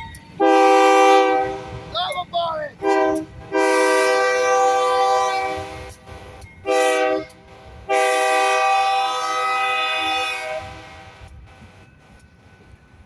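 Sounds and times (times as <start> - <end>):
locomotive air horn blasts: 0.4 - 1.9, 2.7 - 11.1.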